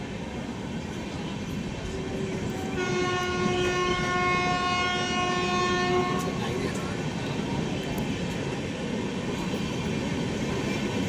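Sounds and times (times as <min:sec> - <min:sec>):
train wheels rumbling on track: 0:00.0 - 0:11.0
train horn chord: 0:02.6 - 0:06.4.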